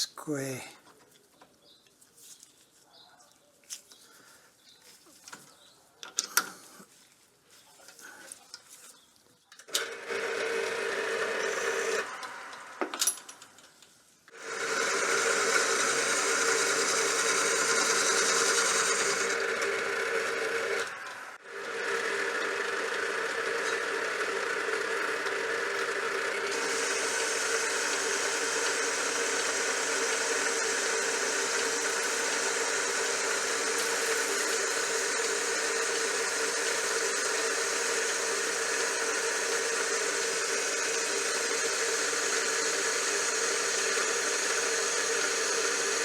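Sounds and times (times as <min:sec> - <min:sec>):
power tool humming: 0:09.7 - 0:13.3, 0:14.3 - 0:46.0.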